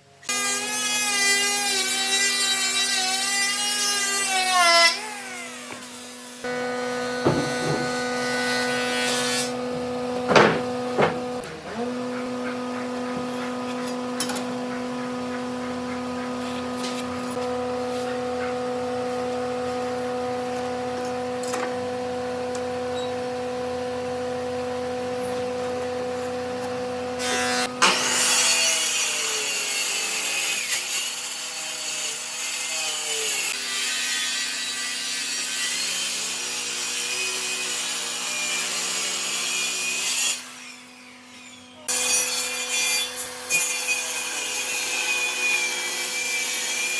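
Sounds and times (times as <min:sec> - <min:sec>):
power tool cutting wood: 0:00.1 - 0:46.9
power tool motor humming: 0:00.2 - 0:34.4.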